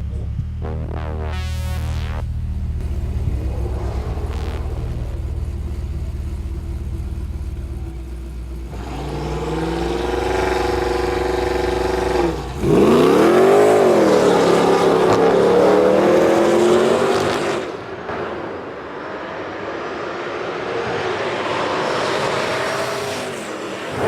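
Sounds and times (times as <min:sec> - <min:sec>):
cars accelerating hard: 0:08.6 - 0:24.0.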